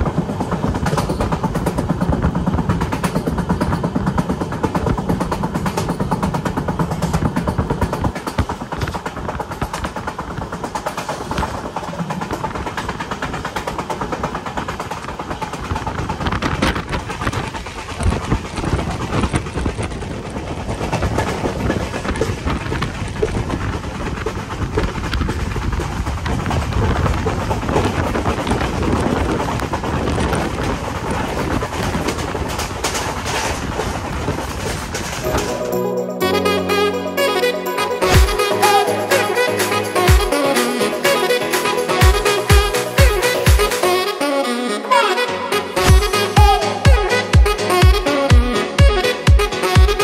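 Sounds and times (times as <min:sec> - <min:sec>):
clicks and clatter: 0:00.0 - 0:35.5
train wheels rumbling on rail: 0:00.0 - 0:50.0.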